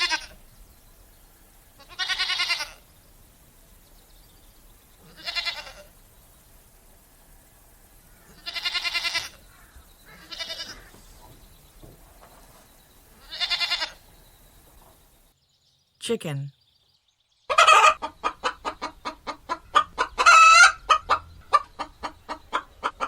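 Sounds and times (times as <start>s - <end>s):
goat bleating: 0.0s - 0.4s, 1.8s - 2.8s, 5.0s - 5.9s, 8.3s - 9.4s, 10.1s - 11.0s, 13.2s - 14.0s.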